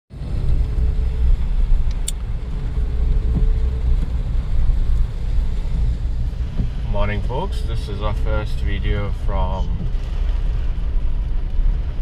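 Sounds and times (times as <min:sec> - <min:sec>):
car driving rumble from inside: 0:00.1 - 0:12.0.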